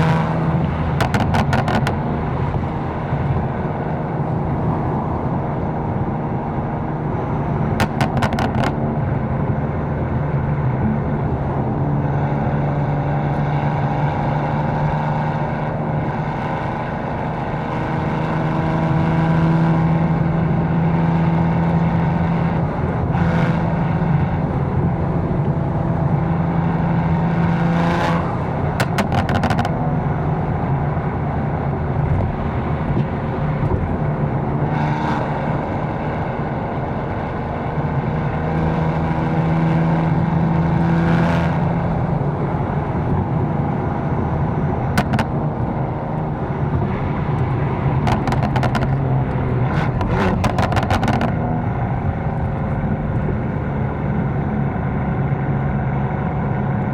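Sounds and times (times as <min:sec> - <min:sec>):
car engine running: 0:00.0 - 0:56.9
exhaust crackles: 0:42.2 - 0:55.0.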